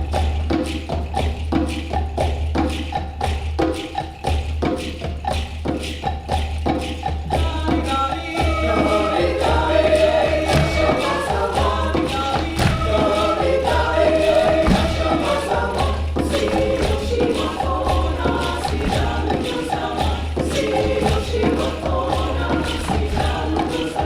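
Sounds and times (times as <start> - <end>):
hand percussion tapping a beat: 0.0 - 24.0
mixed choir singing in parts: 7.4 - 24.0.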